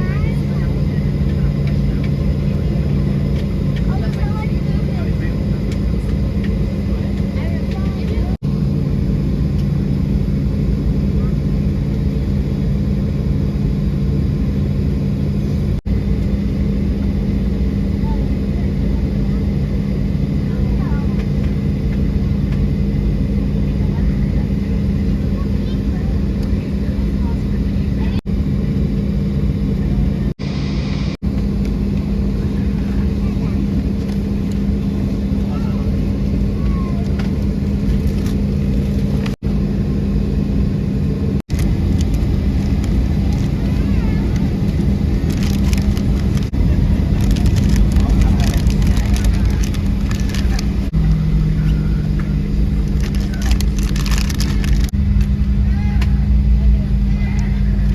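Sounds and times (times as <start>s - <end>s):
airliner rumble: 0.0s - 57.9s
loud engine drone: 0.0s - 57.9s.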